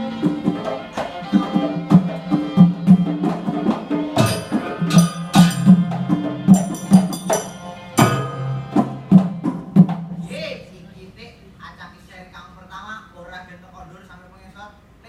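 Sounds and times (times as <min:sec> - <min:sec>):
drums in steady beat: 0:00.0 - 0:10.9
loud ringing strikes: 0:04.2 - 0:10.3.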